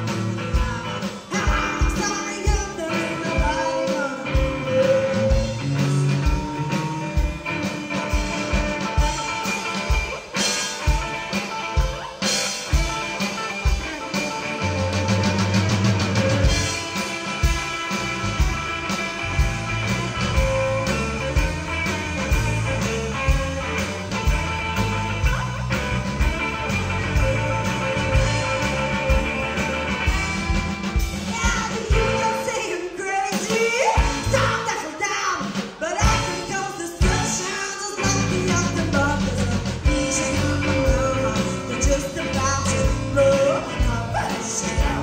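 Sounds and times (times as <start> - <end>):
person singing: 0.0 - 6.9, 31.2 - 45.0
rock band playing: 0.0 - 45.0.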